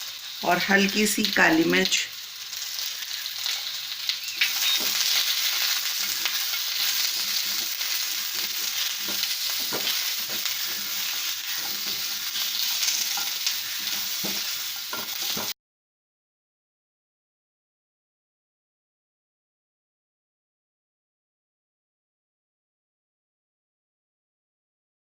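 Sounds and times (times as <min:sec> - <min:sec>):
vegetables sizzling in a pan: 0:00.0 - 0:15.6
spatula clicking and scraping: 0:04.4 - 0:15.5.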